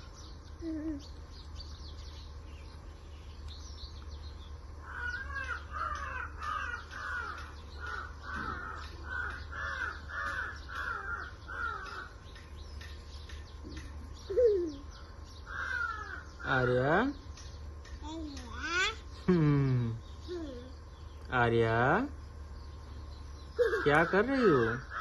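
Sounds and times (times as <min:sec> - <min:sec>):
small birds chirping faintly: 0:00.0 - 0:25.0
crow cawing: 0:04.8 - 0:12.4, 0:15.4 - 0:17.1, 0:23.6 - 0:25.0.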